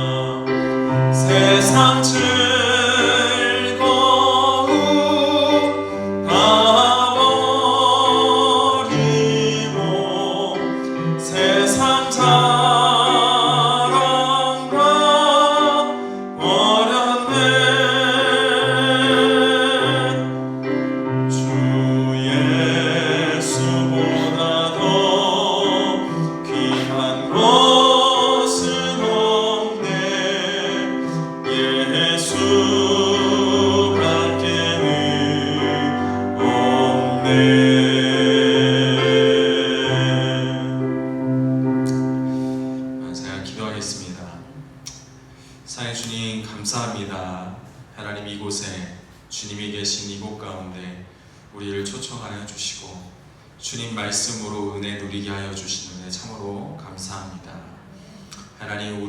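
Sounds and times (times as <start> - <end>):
person singing with vibrato: 0.0 - 44.9
sustained keyboard accompaniment: 0.0 - 47.0.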